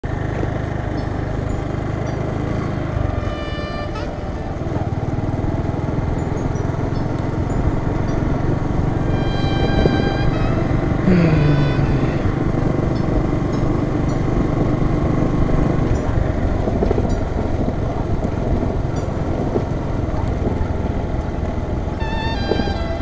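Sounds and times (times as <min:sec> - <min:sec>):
motorcycle engine running: 0:00.0 - 0:23.0
road and wind noise: 0:00.0 - 0:23.0
music: 0:02.9 - 0:04.8, 0:09.0 - 0:12.3, 0:21.9 - 0:23.0.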